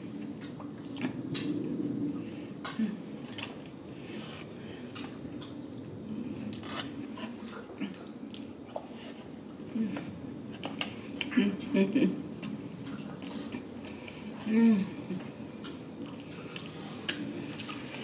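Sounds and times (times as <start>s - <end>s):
chewing crispy food: 15.6s - 18.0s.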